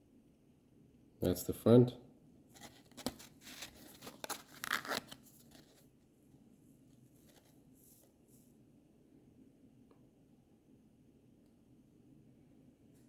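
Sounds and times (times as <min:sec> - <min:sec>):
cardboard card rustling and scraping: 0:02.5 - 0:05.9, 0:07.0 - 0:08.2.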